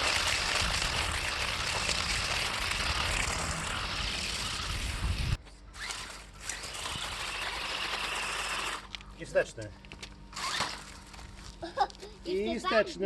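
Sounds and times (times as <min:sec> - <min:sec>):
low rumble: 0:00.0 - 0:05.4
toy car electric motor whirring: 0:00.0 - 0:09.0, 0:10.3 - 0:11.0.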